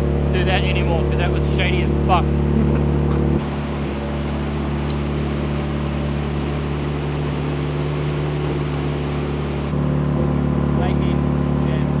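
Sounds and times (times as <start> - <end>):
car engine idling: 3.1 - 9.8.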